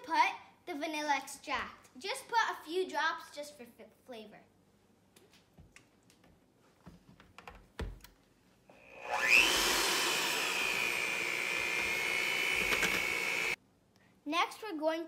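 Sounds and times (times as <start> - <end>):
electric hand mixer whine: 8.7 - 13.6.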